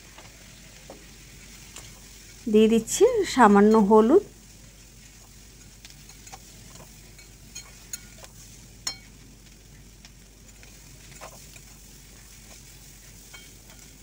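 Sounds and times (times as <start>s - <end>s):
vegetables frying in oil: 0.0s - 14.0s
spatula scraping and clicking on pan: 5.0s - 9.1s, 10.4s - 14.0s.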